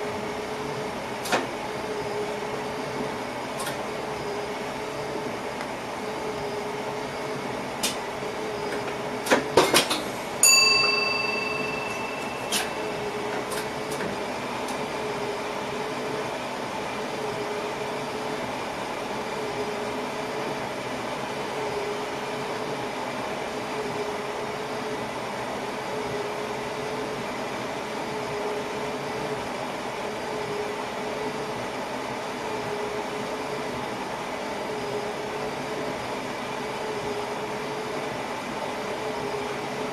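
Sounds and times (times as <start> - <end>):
train cab hum: 8.7 - 14.8
bell-like ding: 10.4 - 13.5.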